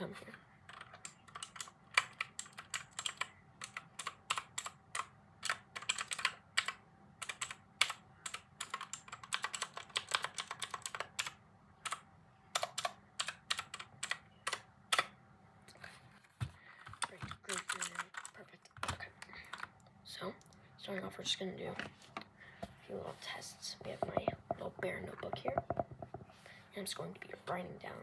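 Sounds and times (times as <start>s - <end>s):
typing on computer keyboard: 0.6s - 15.1s, 16.9s - 19.8s.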